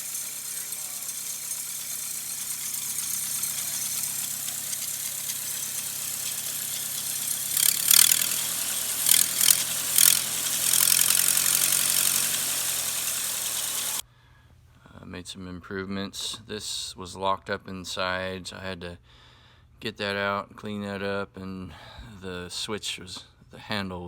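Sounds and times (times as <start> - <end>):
gasoline engine running: 0.0 - 14.0
sharp hissing bursts: 0.0 - 14.0.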